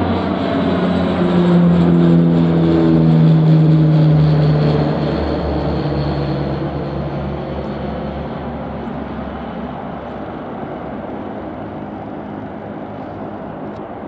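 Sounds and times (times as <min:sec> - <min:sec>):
aircraft engine rumble: 0:00.0 - 0:14.0.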